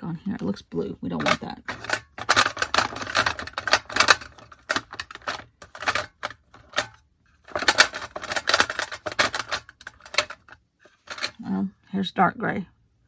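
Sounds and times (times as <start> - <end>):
art supplies clattering in container: 1.2 - 11.4.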